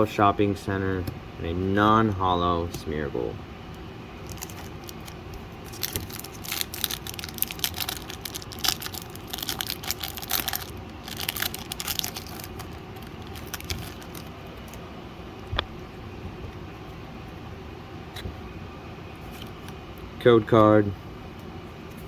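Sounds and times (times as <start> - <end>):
foil wrapper crinkling and tearing: 4.2 - 14.8.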